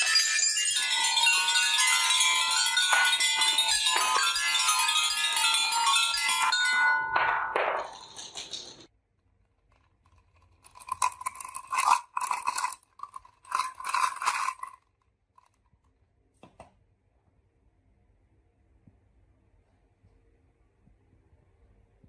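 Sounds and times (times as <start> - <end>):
marbles rattling along a marble run: 0.0 - 6.6, 7.8 - 8.9, 9.7 - 15.6.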